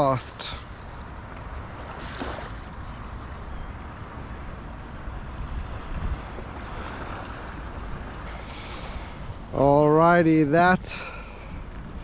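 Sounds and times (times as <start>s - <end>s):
wind on microphone: 1.5s - 12.0s
surf washing onto beach: 5.3s - 9.5s.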